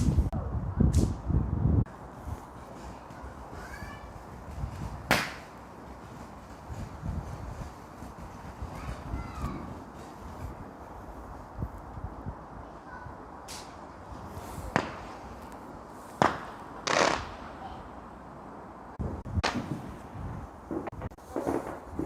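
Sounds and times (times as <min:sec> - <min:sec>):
fireworks hissing: 0:01.9 - 0:11.6
fireworks bangs: 0:02.6 - 0:10.6, 0:13.5 - 0:15.4, 0:16.1 - 0:17.8, 0:19.0 - 0:22.0.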